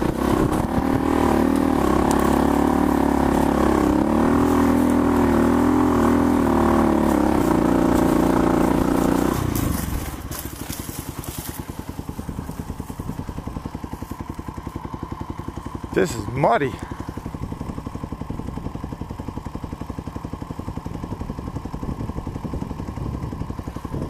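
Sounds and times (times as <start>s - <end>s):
dirt bike engine running: 0.0s - 24.0s.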